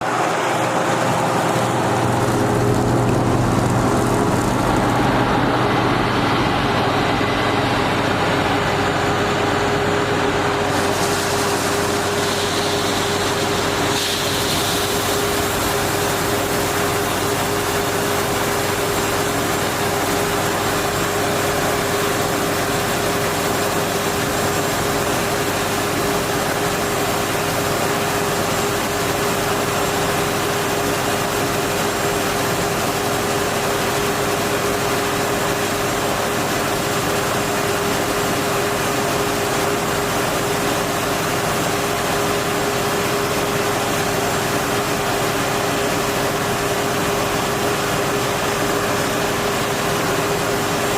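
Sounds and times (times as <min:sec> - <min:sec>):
vehicle engine running: 0:00.0 - 0:23.4.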